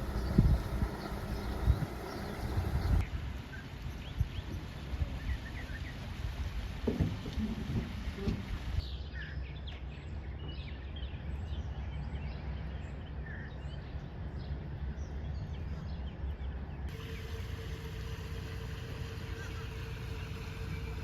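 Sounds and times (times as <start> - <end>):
small birds chirping: 0.0 - 3.0, 8.8 - 21.0
steady low rumble: 0.0 - 3.0.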